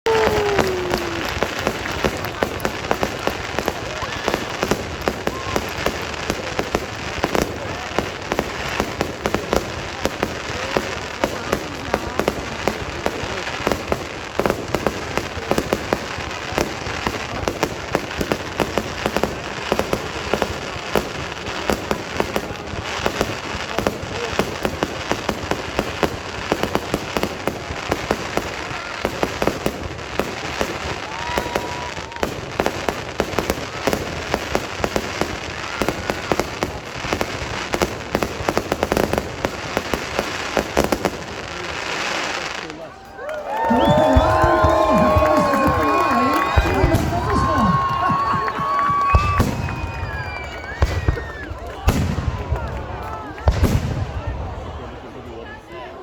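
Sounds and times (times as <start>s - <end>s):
fireworks bangs and crackling: 0.0s - 56.0s
rumble of explosions: 43.8s - 54.7s.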